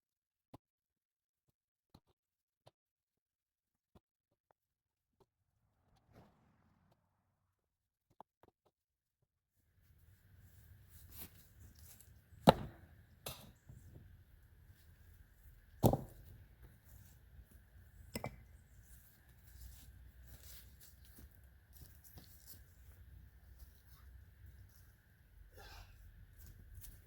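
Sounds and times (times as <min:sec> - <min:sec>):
stones knocking: 0:15.7 - 0:16.3.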